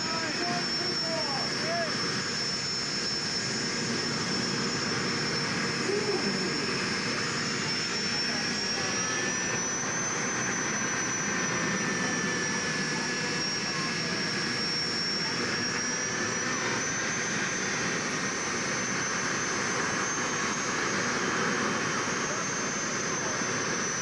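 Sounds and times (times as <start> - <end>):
gas turbine engine whine: 0.0 - 24.0.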